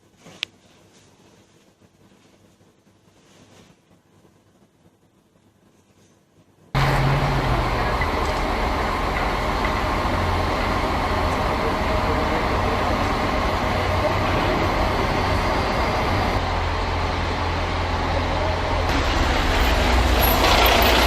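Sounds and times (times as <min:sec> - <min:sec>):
vehicle low hum: 0:06.8 - 0:21.0.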